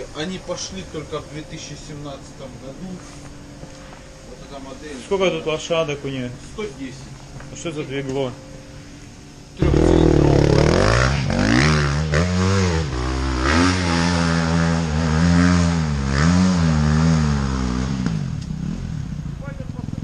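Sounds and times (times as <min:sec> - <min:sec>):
off-road vehicle engine revving: 0:09.6 - 0:20.0.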